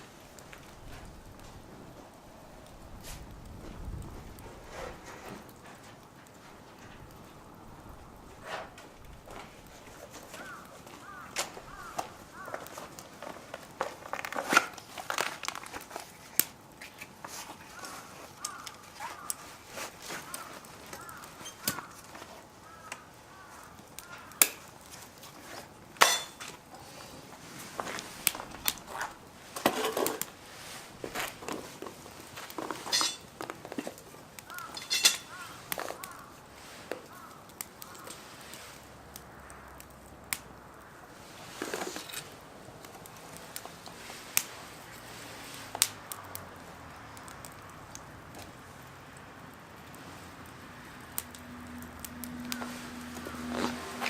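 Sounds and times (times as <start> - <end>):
fire popping and clicking: 0.0 - 54.0
metal cooking gear clinking: 32.8 - 33.3, 34.8 - 35.3.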